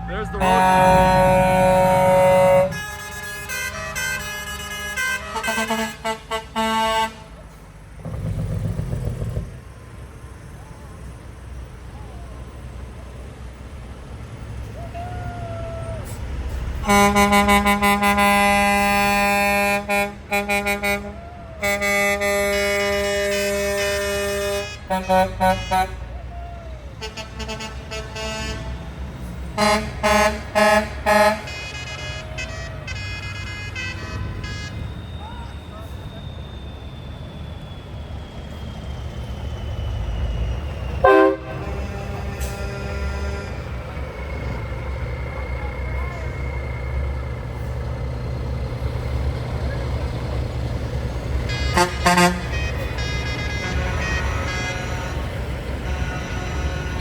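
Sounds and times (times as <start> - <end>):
higher horn: 0.0 - 7.5, 15.8 - 35.3, 41.0 - 46.5, 51.3 - 57.0
truck air horn blasts: 0.0 - 7.7, 16.0 - 36.4, 40.9 - 47.9, 48.8 - 57.0
engines idling: 0.0 - 57.0.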